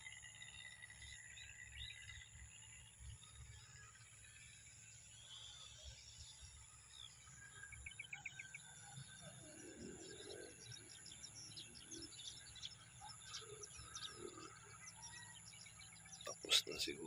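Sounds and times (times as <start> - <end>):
small birds chirping: 0.0 - 17.0
bird trill: 5.2 - 17.0.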